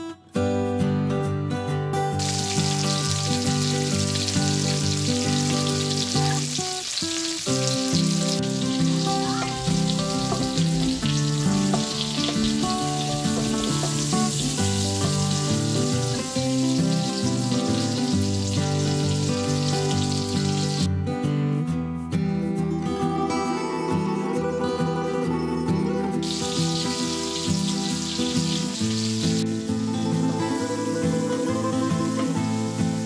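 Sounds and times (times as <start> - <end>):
background music: 0.0 - 33.0
vegetables sizzling in hot oil: 2.2 - 20.9, 26.2 - 33.0.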